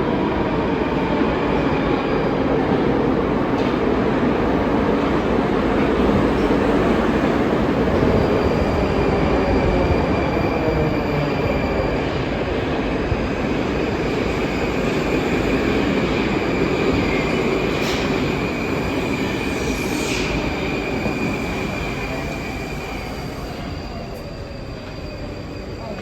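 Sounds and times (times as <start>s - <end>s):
high wheel squeal: 13.4s - 26.0s.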